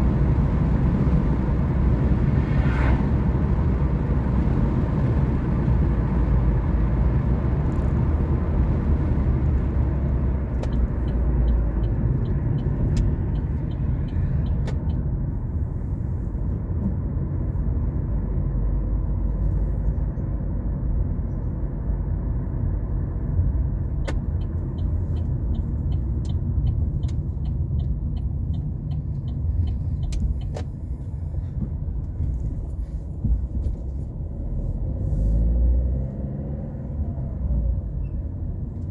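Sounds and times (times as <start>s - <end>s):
car engine and tyres rumbling: 0.0s - 38.9s
light regular ticking: 23.9s - 31.1s.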